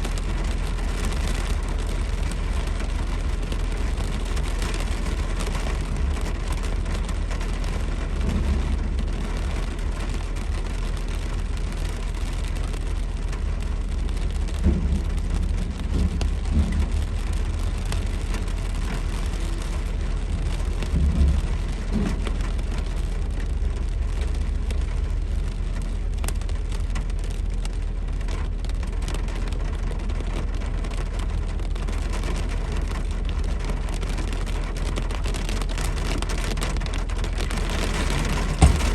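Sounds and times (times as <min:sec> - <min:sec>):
car rumbling on road: 0:00.0 - 0:38.9
heavy rain falling: 0:00.0 - 0:38.9
low thumps: 0:14.0 - 0:22.8, 0:37.6 - 0:38.9.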